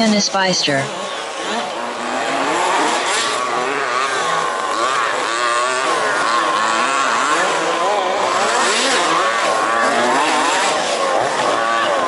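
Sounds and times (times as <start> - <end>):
rc car engines revving: 0.2 - 12.0.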